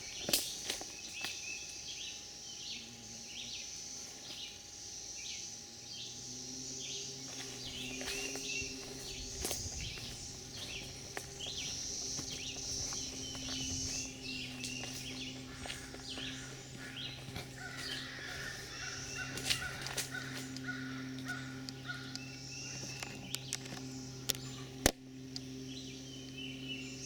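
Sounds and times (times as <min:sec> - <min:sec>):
background birds: 0:00.0 - 0:27.0
insects: 0:00.0 - 0:27.0
low hum: 0:00.0 - 0:27.0
harsh caw-like bird calls: 0:07.4 - 0:23.3.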